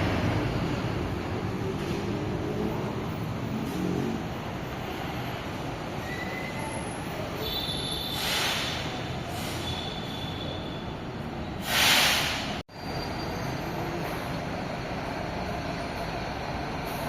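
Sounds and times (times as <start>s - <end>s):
train rumbling: 0.0s - 7.4s, 11.0s - 17.0s
loud hiss: 8.1s - 9.8s, 11.6s - 12.6s.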